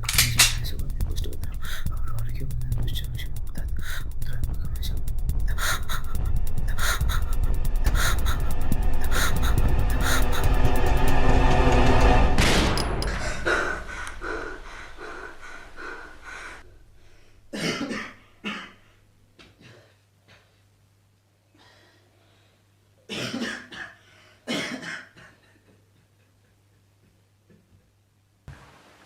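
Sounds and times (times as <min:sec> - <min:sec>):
music: 0:00.0 - 0:13.7
person coughing: 0:05.5 - 0:10.6, 0:17.6 - 0:18.8, 0:23.1 - 0:25.4.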